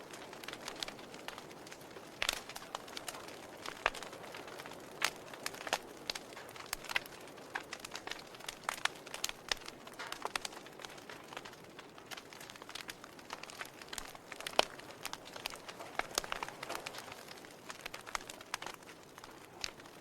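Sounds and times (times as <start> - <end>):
logs popping and snapping: 0.0 - 20.0
wood fire crackling: 0.0 - 20.0.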